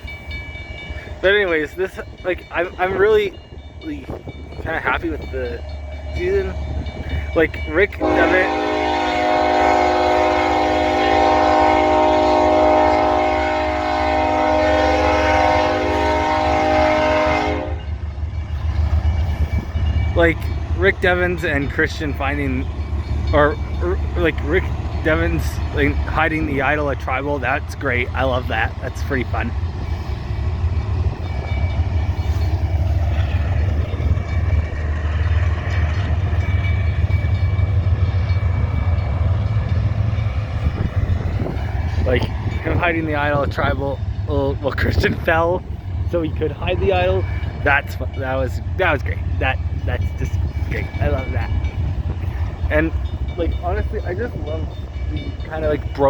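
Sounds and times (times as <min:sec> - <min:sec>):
freight train rumbling: 0:00.0 - 0:56.0
locomotive air horn: 0:08.0 - 0:17.9.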